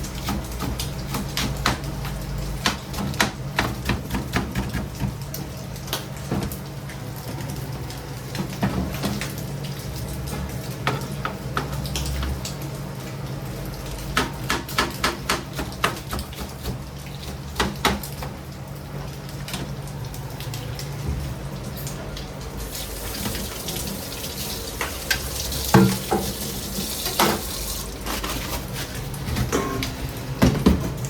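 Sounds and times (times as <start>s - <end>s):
low hum of kitchen equipment: 0.0s - 31.0s
utensils and dishes clattering: 25.6s - 31.0s.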